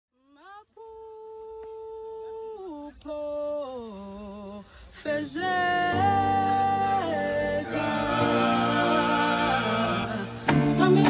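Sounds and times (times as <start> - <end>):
choir of voices: 1.6 - 11.0
backing music: 6.0 - 11.0.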